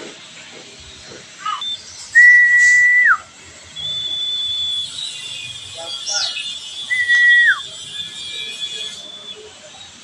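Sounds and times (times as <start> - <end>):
bird whistling pure notes: 6.1 - 7.6.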